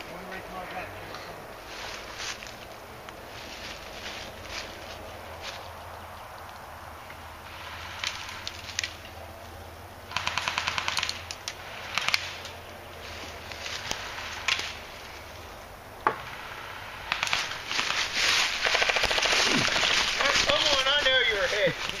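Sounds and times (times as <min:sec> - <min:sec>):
airsoft guns firing: 0:10.1 - 0:11.2, 0:17.0 - 0:20.8.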